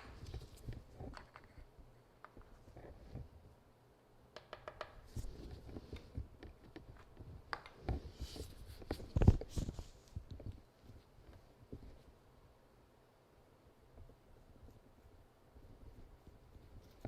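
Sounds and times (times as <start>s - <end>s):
objects handled on a worktable: 0.0s - 3.6s, 4.3s - 12.2s.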